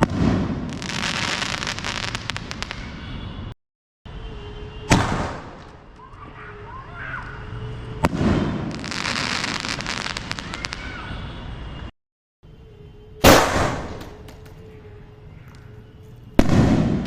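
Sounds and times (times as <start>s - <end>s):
firework crackling: 0.0s - 3.0s, 8.0s - 11.0s
aerial firework shell bangs: 4.9s - 5.7s.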